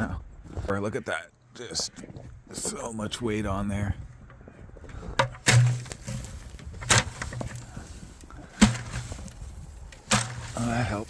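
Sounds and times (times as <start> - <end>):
sharp whacks on snow-laden object: 8.6 - 9.3, 10.1 - 10.6.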